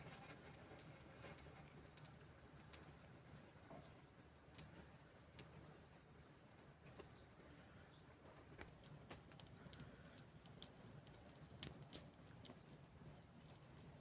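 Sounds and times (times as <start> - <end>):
wood fire crackling: 8.2 - 14.0.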